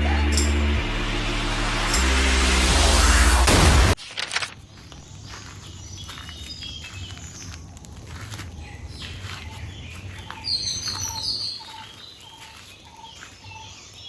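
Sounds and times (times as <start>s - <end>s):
birds chirping: 4.6s - 14.0s.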